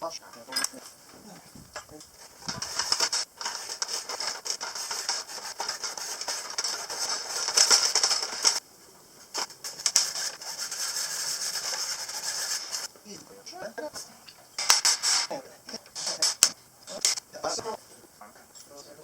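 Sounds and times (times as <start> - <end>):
hand scraping on metal: 0.8 - 8.6, 9.3 - 12.9, 14.5 - 17.7.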